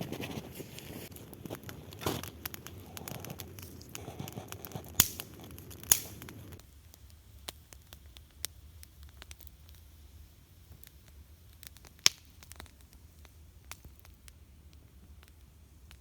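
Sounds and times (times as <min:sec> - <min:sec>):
kindling rustling and crackling: 0:00.0 - 0:06.6
small fire crackles: 0:00.0 - 0:16.0
sharp wood snaps: 0:04.8 - 0:06.3.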